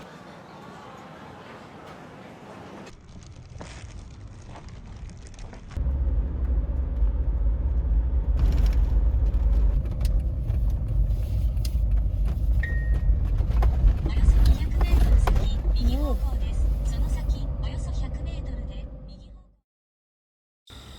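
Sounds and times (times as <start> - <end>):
vehicle low rumble: 2.9 - 19.5.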